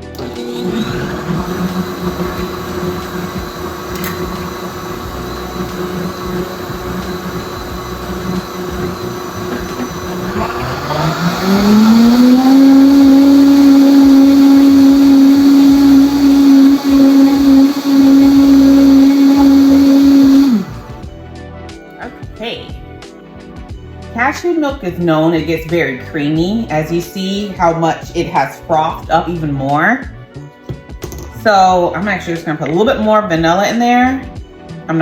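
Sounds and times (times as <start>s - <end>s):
blender motor running: 0.0s - 21.1s.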